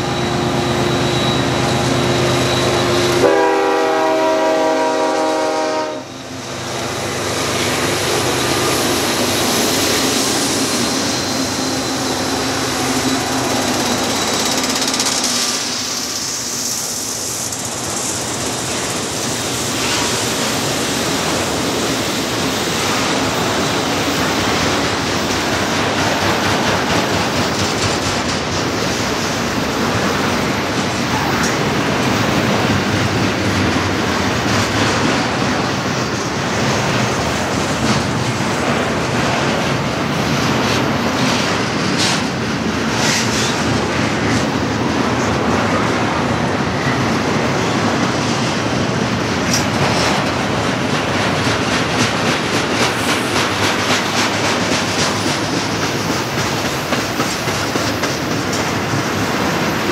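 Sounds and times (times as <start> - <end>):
high wheel squeals: 0.0 - 22.7
train wheels rumbling on rail: 0.0 - 59.9
wheels clickety-clack: 13.1 - 21.8, 22.4 - 45.8, 47.4 - 59.9.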